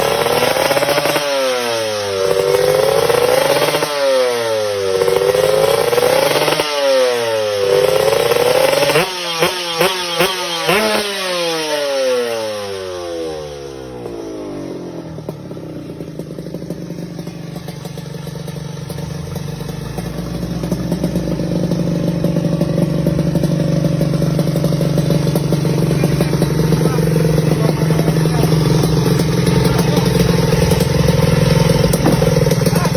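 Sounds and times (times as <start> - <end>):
two-stroke motorcycle engine revving: 0.0 - 32.9.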